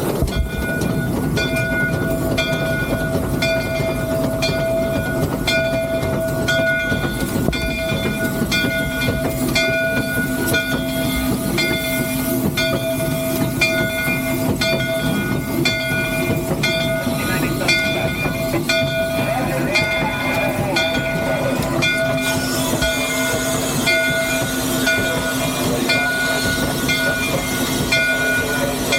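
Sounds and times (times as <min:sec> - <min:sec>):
steam locomotive running: 0:00.0 - 0:28.9.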